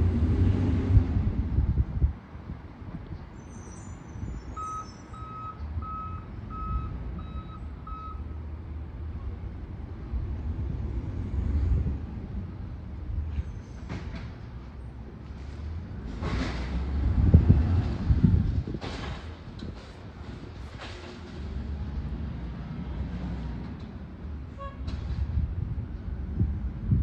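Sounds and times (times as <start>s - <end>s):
truck engine rumble: 0.0s - 3.4s, 4.2s - 27.0s
truck reversing alarm beeping: 4.5s - 8.4s.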